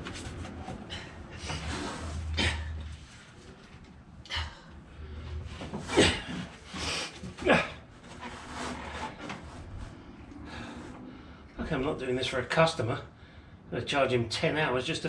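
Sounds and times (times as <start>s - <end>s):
man grunting and sighing: 0.9s - 2.9s, 5.9s - 7.9s.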